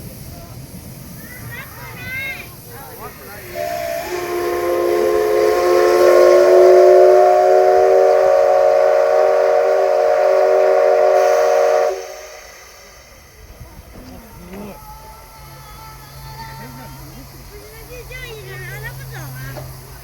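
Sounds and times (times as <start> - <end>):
steam whistle blast: 3.4 - 13.5.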